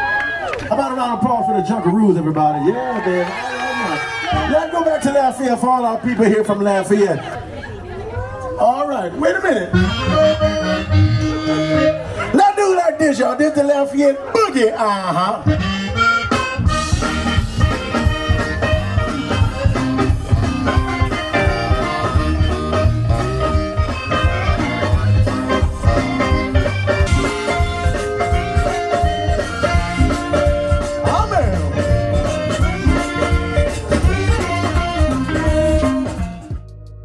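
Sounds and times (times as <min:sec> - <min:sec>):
live band dance tune: 0:00.5 - 0:07.4, 0:09.1 - 0:37.0
accordion: 0:09.7 - 0:12.4, 0:15.4 - 0:37.0
steady drum beat: 0:16.3 - 0:36.9.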